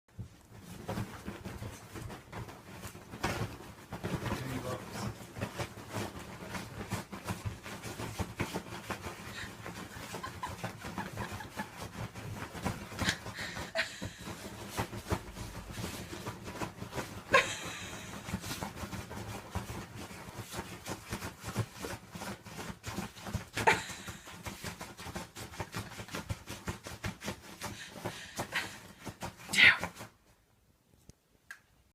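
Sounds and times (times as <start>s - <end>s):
rustling and scratching: 0.1s - 31.1s
puppy panting and snuffling: 7.0s - 21.9s.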